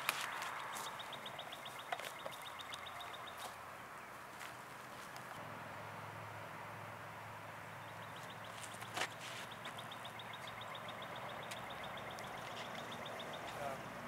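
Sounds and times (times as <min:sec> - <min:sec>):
bird trilling: 0:00.3 - 0:03.6, 0:07.8 - 0:13.8.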